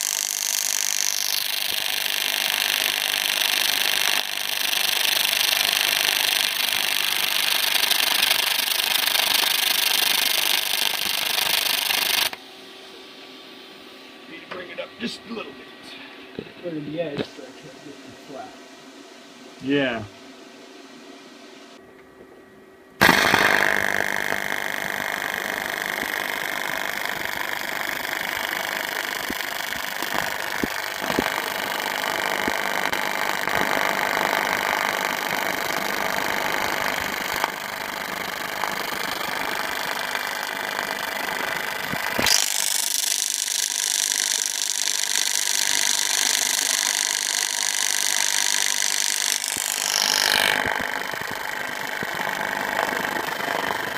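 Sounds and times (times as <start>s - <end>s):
welding arc buzzing: 0.0s - 12.4s, 23.0s - 53.9s.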